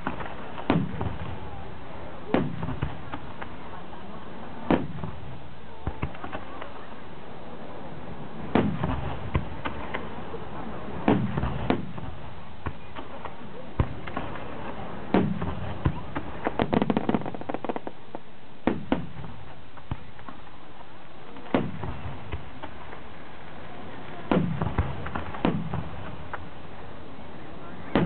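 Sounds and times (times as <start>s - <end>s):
rapid firework pops: 0.0s - 1.6s, 2.3s - 3.6s, 4.6s - 6.8s, 8.5s - 10.1s, 11.0s - 23.0s, 24.1s - 26.5s
firework shells bursting: 11.0s - 26.6s.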